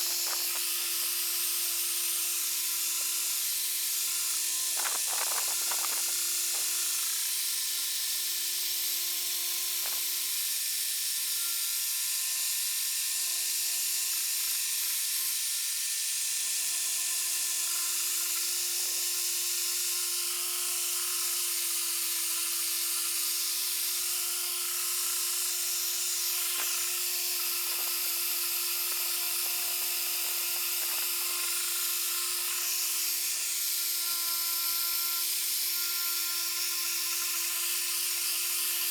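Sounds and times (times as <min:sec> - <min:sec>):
polisher whining: 0:00.0 - 0:07.2, 0:17.5 - 0:38.9.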